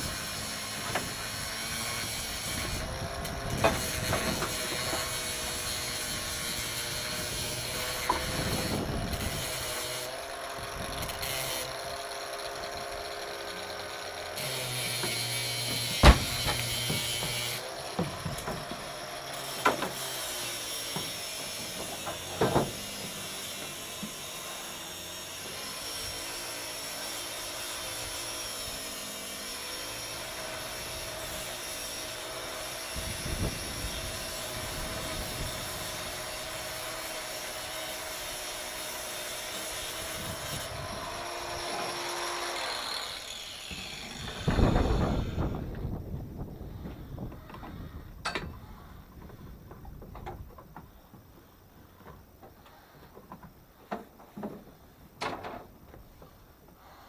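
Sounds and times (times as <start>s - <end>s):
sharp knocks: 15.0s - 18.6s.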